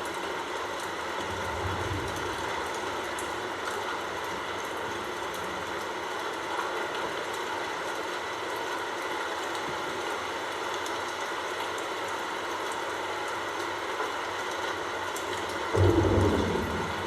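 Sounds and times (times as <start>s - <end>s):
rain hissing: 0.9s - 6.0s, 15.0s - 17.0s.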